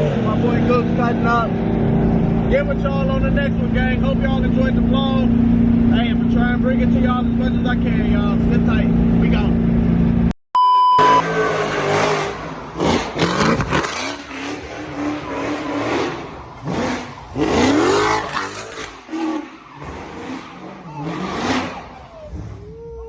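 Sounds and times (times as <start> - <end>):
car engine revving hard: 11.0 - 22.6
tire squeal: 13.0 - 23.0.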